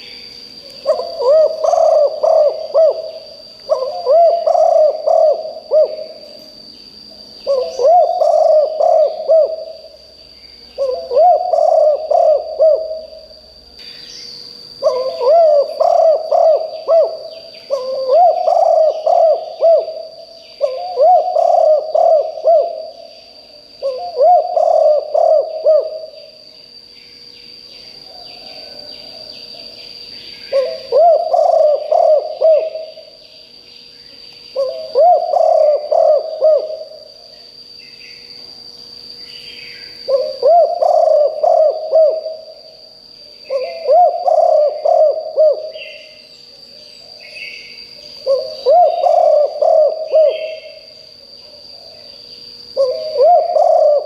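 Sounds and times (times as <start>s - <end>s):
faint bird chirps: 0.0s - 54.0s
steady high whine: 0.0s - 54.0s
dove cooing: 0.8s - 6.5s, 7.3s - 10.0s, 10.8s - 13.4s, 14.8s - 26.4s, 27.9s - 33.2s, 34.5s - 37.3s, 39.8s - 42.8s, 43.4s - 46.2s, 48.1s - 51.9s, 52.7s - 54.0s.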